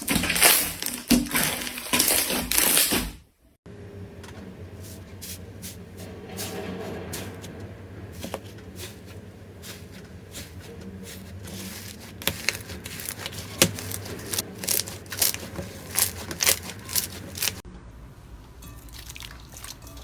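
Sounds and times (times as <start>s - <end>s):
slime crackling and popping: 0.0s - 3.1s, 11.7s - 17.6s.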